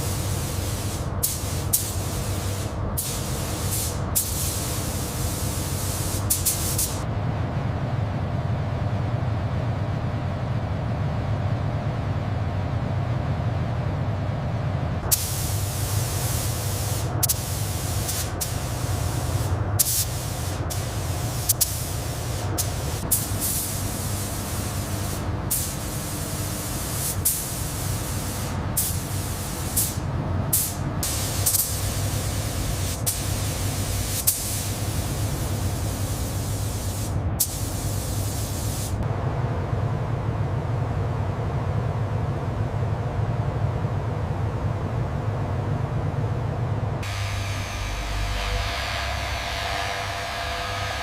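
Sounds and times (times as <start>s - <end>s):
spray gun hissing: 0.0s - 7.0s, 15.1s - 39.0s
steady low hum: 0.0s - 51.0s.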